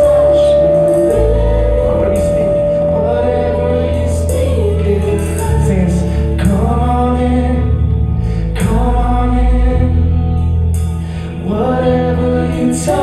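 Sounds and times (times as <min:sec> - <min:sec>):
voices singing held notes: 0:00.0 - 0:07.6
gospel band playing: 0:00.0 - 0:13.0.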